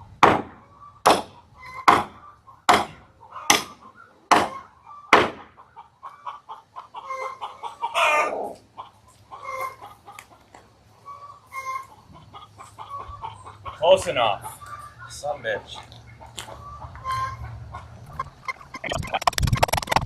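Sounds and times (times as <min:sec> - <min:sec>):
hammer striking wood: 0:00.2 - 0:01.3, 0:01.9 - 0:03.7, 0:04.3 - 0:04.5, 0:05.1 - 0:05.4
chickens clucking: 0:00.5 - 0:20.0.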